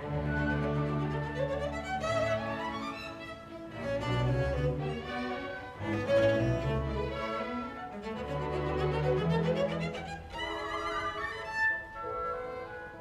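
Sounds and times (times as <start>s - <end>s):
string orchestra playing: 0.0s - 13.0s.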